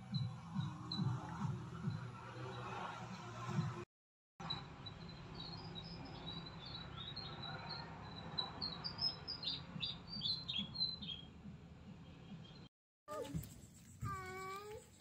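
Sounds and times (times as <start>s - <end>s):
small birds chirping: 4.4s - 12.7s.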